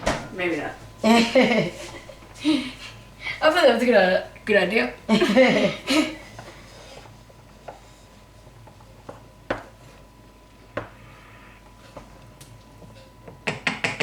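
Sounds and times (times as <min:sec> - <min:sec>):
kitchen knocks and clinks: 0:00.0 - 0:02.4.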